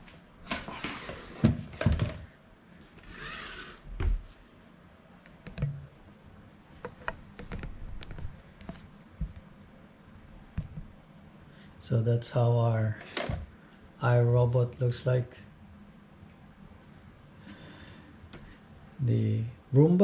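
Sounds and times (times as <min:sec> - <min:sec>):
knocks and thuds of handling: 0:00.5 - 0:02.3.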